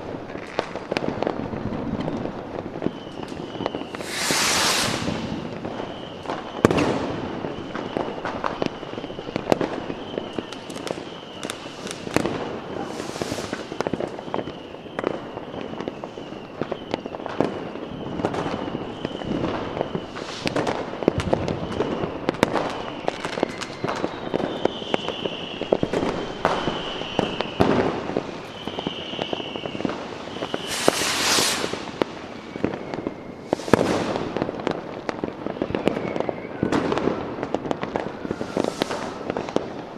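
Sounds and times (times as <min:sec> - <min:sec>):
fireworks bangs and crackles: 0:00.0 - 0:39.9
fireworks whistling: 0:02.0 - 0:39.9
fireworks hissing bursts: 0:03.1 - 0:14.8, 0:18.1 - 0:34.9, 0:37.6 - 0:39.9.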